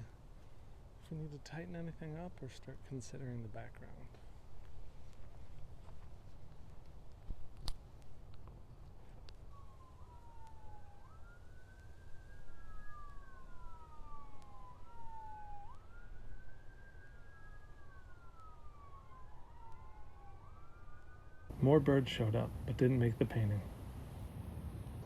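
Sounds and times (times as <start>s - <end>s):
emergency vehicle siren wailing: 7.8s - 25.0s.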